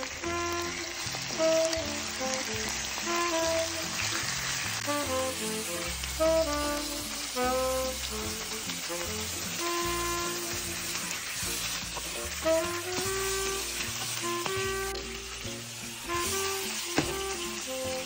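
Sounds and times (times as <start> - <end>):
background music: 0.0 - 18.0
chicken sizzling in hot oil: 0.0 - 18.0
wooden spatula stirring: 8.4 - 15.2.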